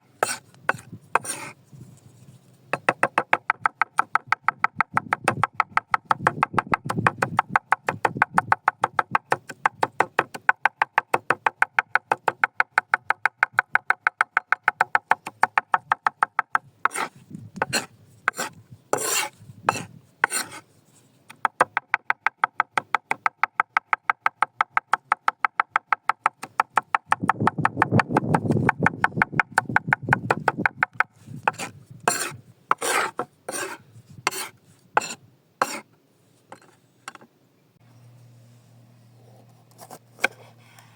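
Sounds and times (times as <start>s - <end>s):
rapid rasping strokes: 0.2s - 2.5s, 16.8s - 21.1s, 31.1s - 35.9s.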